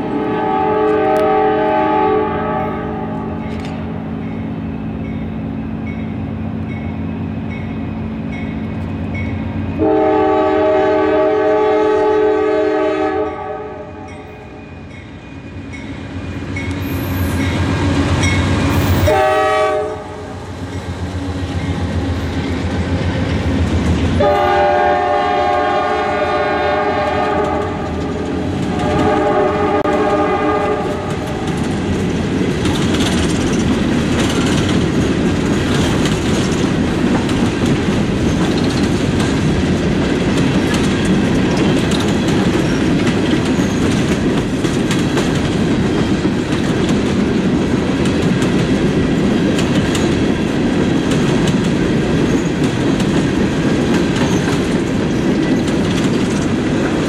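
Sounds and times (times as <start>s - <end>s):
train air horn blasts: 0.0s - 3.4s, 9.8s - 14.3s, 18.7s - 20.4s, 24.2s - 31.5s
diesel locomotive engine rumble: 0.0s - 57.0s
wheels clicking over rail joints: 30.8s - 57.0s.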